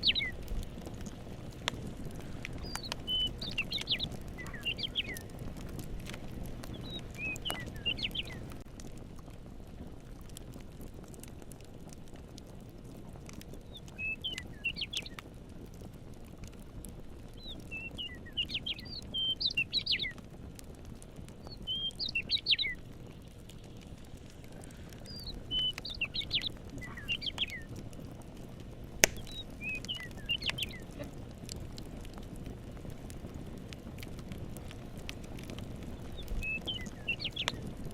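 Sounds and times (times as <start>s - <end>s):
songbird warbling: 0.0s - 0.4s, 2.6s - 5.3s, 6.7s - 8.5s, 25.0s - 27.7s, 29.0s - 31.1s, 36.1s - 37.6s
faint crackles: 0.0s - 37.9s
low outdoor rumble: 0.0s - 37.9s
sharp pop: 29.0s - 29.3s.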